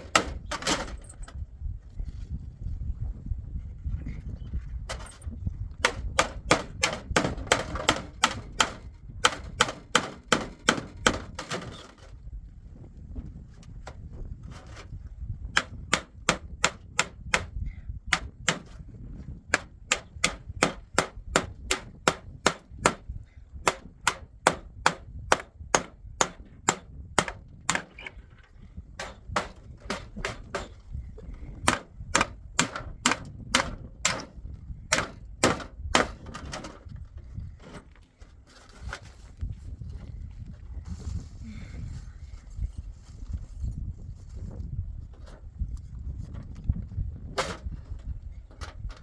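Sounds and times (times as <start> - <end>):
hammer blows on wood: 15.5 - 28.0.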